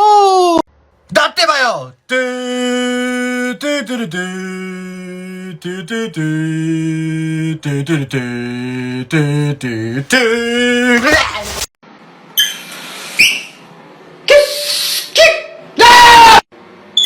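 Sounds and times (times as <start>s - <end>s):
person singing long notes: 2.1s - 11.4s.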